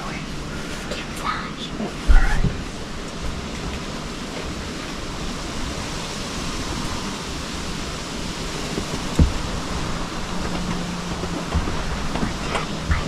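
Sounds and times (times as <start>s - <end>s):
wind rushing: 0.0s - 13.0s
dull thump: 8.9s - 9.7s.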